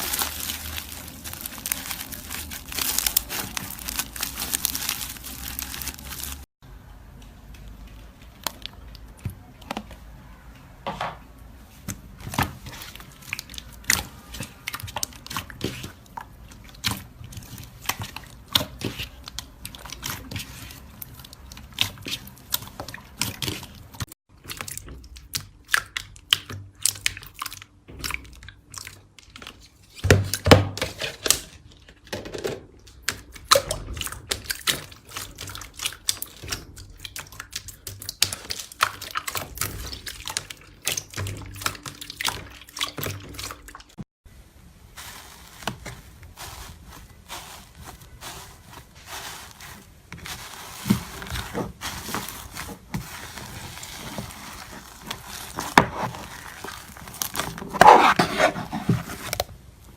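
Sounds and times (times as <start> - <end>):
slime squeezed by hand: 45.0 - 58.7.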